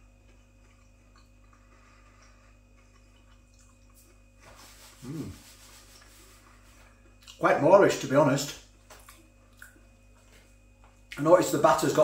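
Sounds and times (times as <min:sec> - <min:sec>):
man chewing food: 0:00.0 - 0:05.2, 0:05.8 - 0:07.4, 0:08.7 - 0:11.2
short hummed voice sound: 0:05.0 - 0:05.5.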